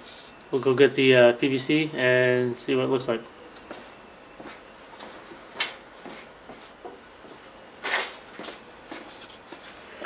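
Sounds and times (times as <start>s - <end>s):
scrape or rustle: 0.0s - 0.4s.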